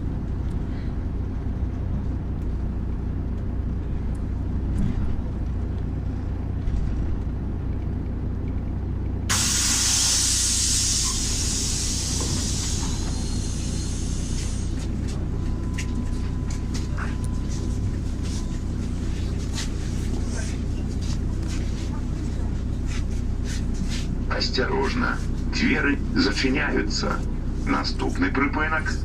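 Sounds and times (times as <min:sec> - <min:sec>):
bus engine rumbling: 0:00.0 - 0:29.0
compressed air hiss: 0:09.3 - 0:14.8.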